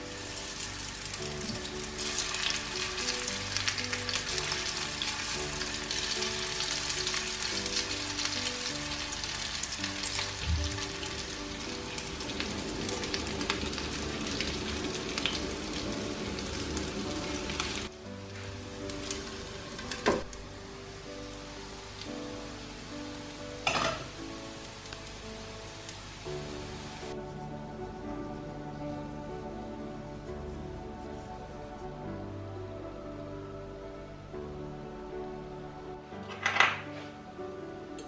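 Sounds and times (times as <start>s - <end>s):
patties sizzling in oil: 0.0s - 28.6s.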